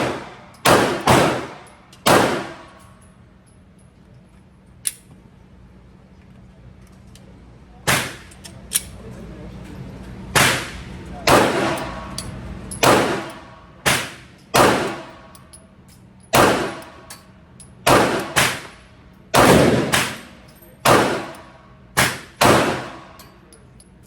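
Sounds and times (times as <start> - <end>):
gunshots with ringing echo: 0.0 - 2.7, 11.3 - 12.1, 12.8 - 15.2, 16.4 - 16.9, 17.9 - 18.7, 19.3 - 21.4, 22.0 - 23.1.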